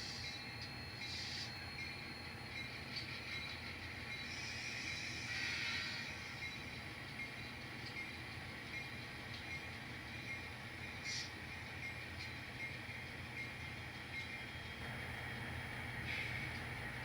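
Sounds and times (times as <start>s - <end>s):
model train humming on track: 1.0s - 17.0s.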